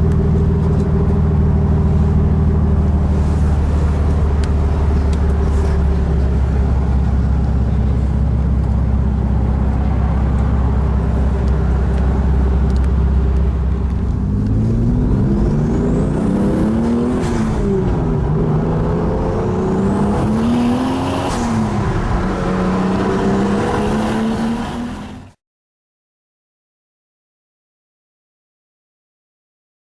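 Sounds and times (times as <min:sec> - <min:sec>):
car engine idling: 0:00.0 - 0:15.7
car engine revving: 0:00.0 - 0:25.4.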